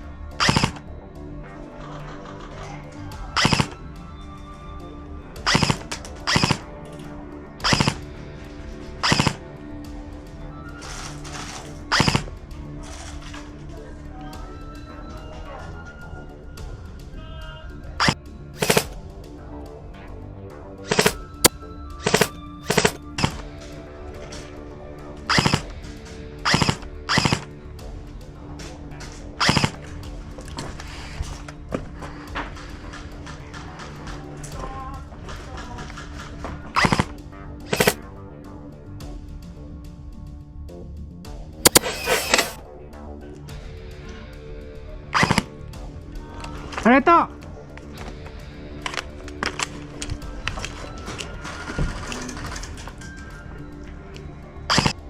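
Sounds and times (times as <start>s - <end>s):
background music: 0.0s - 55.0s
airsoft gun rapid-fire bursts: 7.6s - 8.0s, 18.0s - 18.9s, 22.0s - 23.4s, 26.5s - 27.5s, 37.7s - 38.0s
airsoft gun automatic fire: 18.0s - 18.9s, 20.9s - 21.2s, 22.0s - 23.4s, 37.7s - 38.0s, 41.7s - 42.6s.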